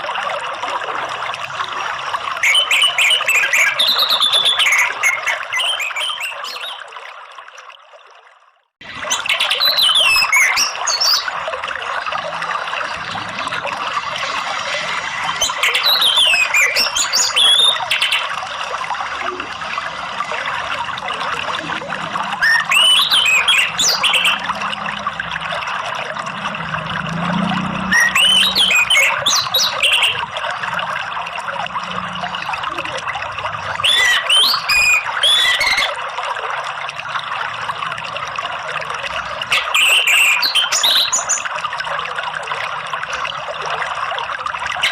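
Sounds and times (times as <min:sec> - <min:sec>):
running water: 0:00.0 - 0:44.9
thrush whistling song: 0:02.4 - 0:06.9, 0:09.1 - 0:11.4, 0:13.9 - 0:18.4, 0:22.2 - 0:24.9, 0:27.0 - 0:30.2, 0:33.8 - 0:36.0, 0:39.5 - 0:41.5.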